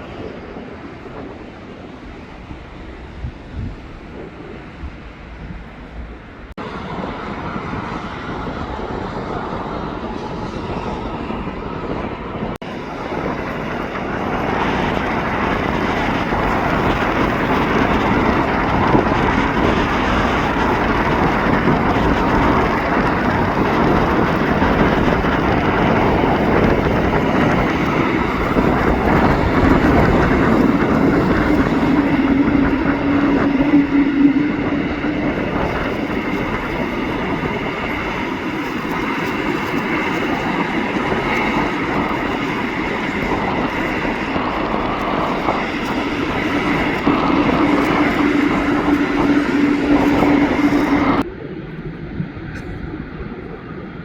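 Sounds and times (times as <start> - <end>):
jet engines roaring: 0.0 - 54.0
steady hum: 44.5 - 54.0.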